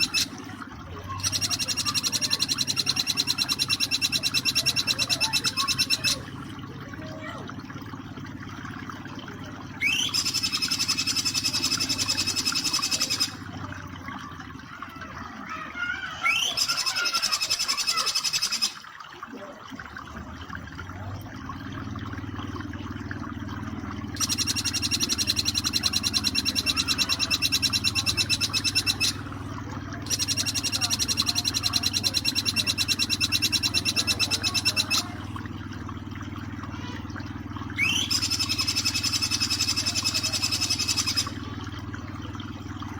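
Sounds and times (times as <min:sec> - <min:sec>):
bird trilling: 0:00.0 - 0:06.4, 0:09.8 - 0:13.5, 0:16.0 - 0:18.8, 0:24.2 - 0:29.4, 0:30.0 - 0:35.5, 0:37.7 - 0:41.6
flowing water: 0:00.0 - 0:42.9.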